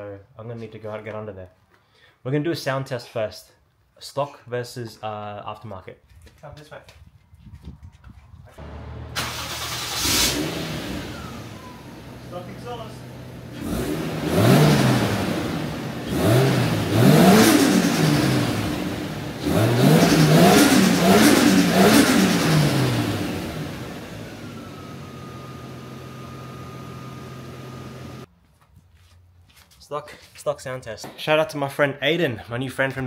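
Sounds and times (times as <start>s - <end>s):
car engine revving: 8.6s - 28.3s.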